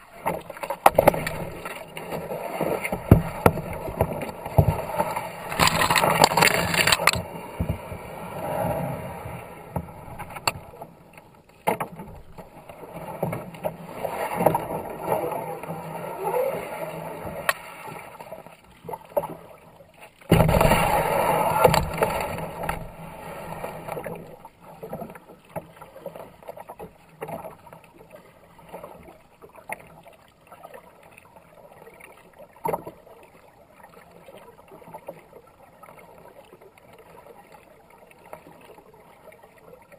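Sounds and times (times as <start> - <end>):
water rushing past hull: 0.0 - 11.1, 12.0 - 31.2
paddle strokes splashing: 0.0 - 39.9.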